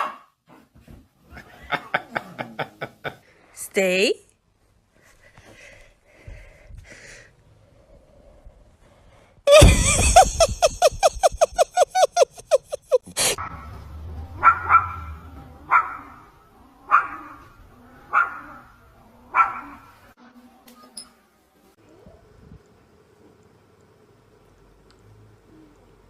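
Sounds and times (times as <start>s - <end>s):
dog yapping: 14.4s - 15.1s, 15.7s - 16.2s, 16.9s - 17.5s, 18.1s - 18.7s, 19.3s - 19.9s.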